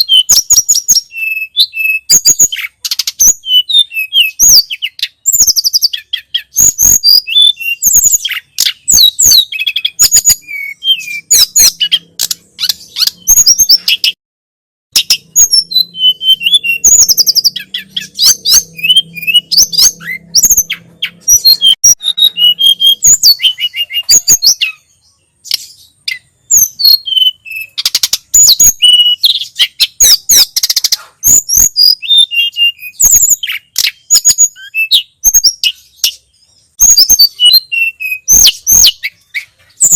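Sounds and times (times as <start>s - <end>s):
songbird chirping and whistling: 0.0s - 14.2s, 14.9s - 39.9s.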